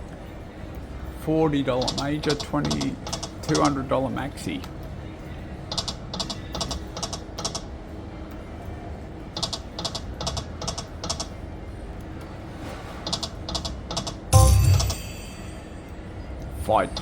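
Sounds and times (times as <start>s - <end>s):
low room hum: 0.0s - 17.0s
gaming machine clicking effects: 1.7s - 3.8s, 5.7s - 7.7s, 9.4s - 11.4s, 13.1s - 15.7s.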